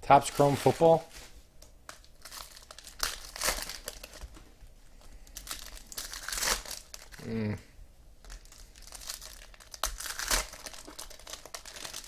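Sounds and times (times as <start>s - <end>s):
card pack wrappers tearing: 1.9s - 4.3s, 5.3s - 7.2s, 8.3s - 12.0s.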